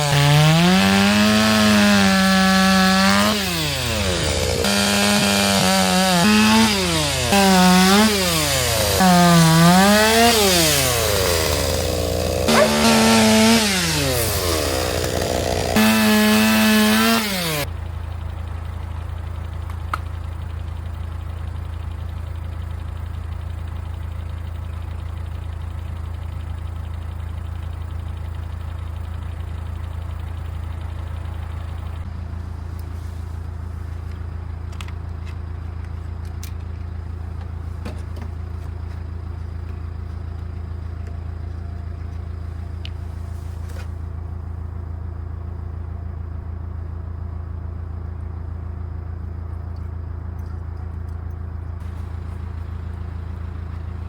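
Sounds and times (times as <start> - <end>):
chainsaw revving: 0.0 - 17.7, 51.8 - 54.0
low engine hum: 0.0 - 54.0.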